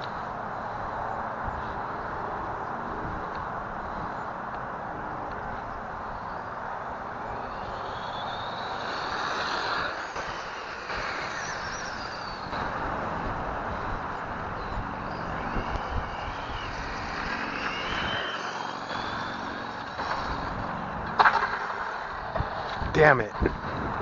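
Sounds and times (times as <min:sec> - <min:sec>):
toy truck electric motor whining: 0:07.1 - 0:22.8.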